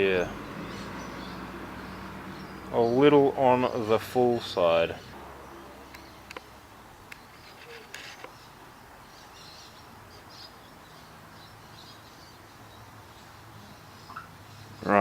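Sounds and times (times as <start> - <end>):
faint bird chirps: 5.0 - 15.0.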